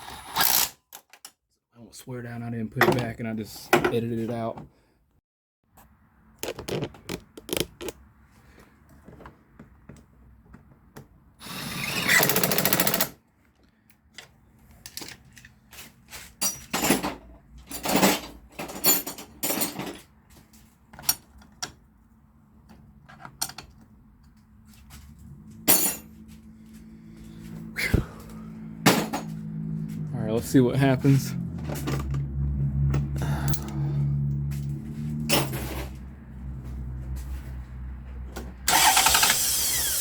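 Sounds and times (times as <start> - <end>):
tools clicking and knocking: 6.4 - 8.0, 22.7 - 24.4.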